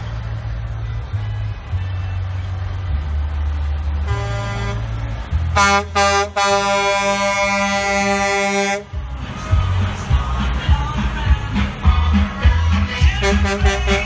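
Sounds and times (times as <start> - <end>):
truck engine rumbling: 0.0 - 14.0
truck air horn blasts: 4.0 - 4.9, 5.5 - 14.0.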